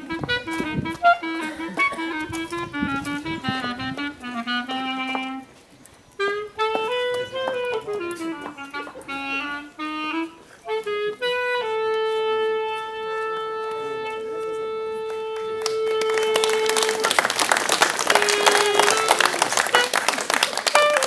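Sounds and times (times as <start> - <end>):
solo melody: 0.0 - 17.3, 18.1 - 20.1, 20.7 - 21.0
audience clapping: 15.3 - 21.0.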